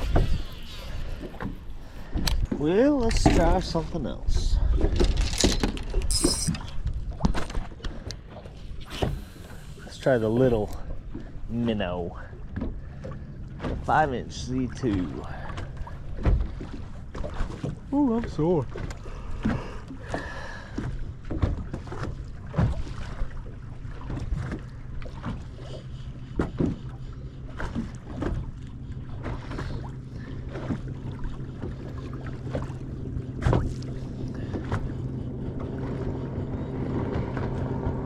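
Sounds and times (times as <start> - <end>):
water slapping against boat hull: 0.0 - 11.8, 12.5 - 38.0
steady low hum: 23.2 - 38.0.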